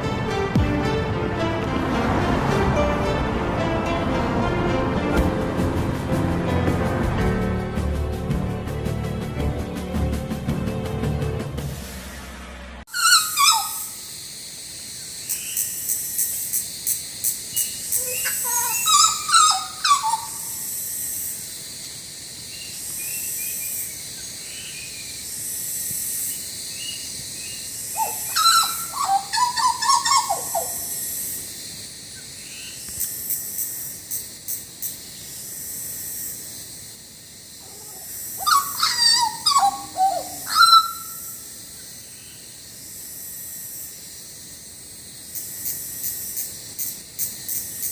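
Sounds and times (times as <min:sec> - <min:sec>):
bird singing fluty whistles: 0:28.0 - 0:30.9, 0:38.4 - 0:41.3.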